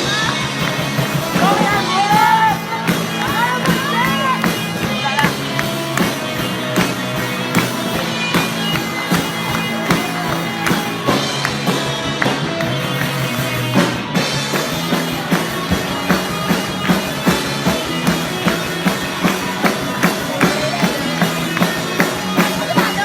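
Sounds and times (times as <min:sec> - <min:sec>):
person singing: 0:00.0 - 0:05.6
band music with drums and guitar: 0:00.0 - 0:23.0.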